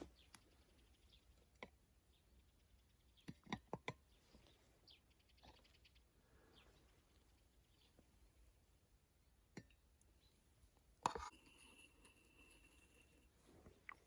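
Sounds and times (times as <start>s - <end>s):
faint bird chirps: 0.0s - 8.5s.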